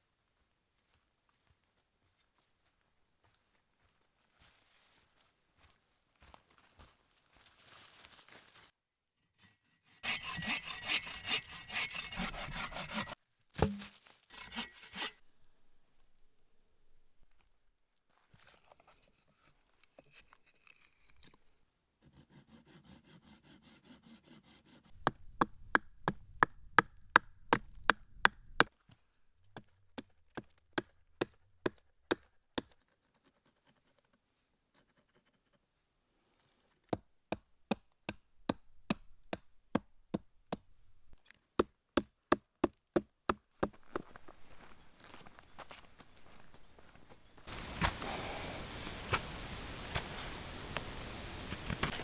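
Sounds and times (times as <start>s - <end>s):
axe chopping wood: 10.0s - 15.2s, 47.5s - 52.0s.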